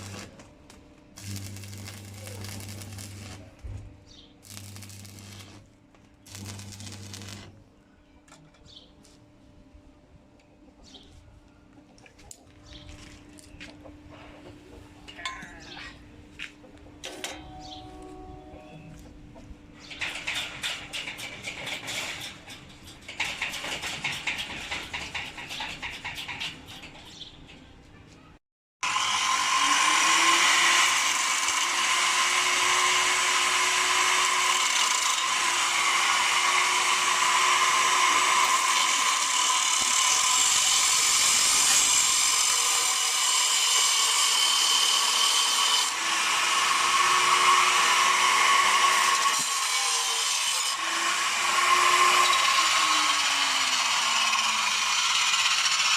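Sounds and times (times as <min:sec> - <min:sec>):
electric power tool whining: 0:01.2 - 0:03.5, 0:04.4 - 0:05.7, 0:06.3 - 0:07.6, 0:28.8 - 0:43.0.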